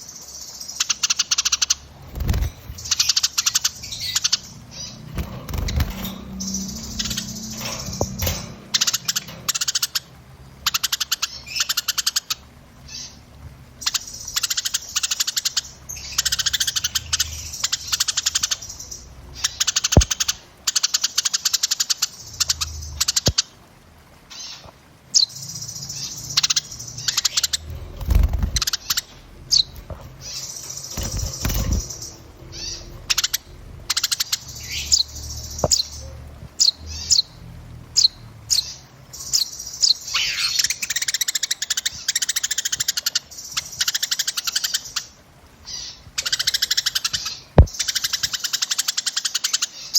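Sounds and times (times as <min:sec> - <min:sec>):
songbirds chirping and trilling: 0:00.0 - 0:49.9
low bumps: 0:01.9 - 0:10.4.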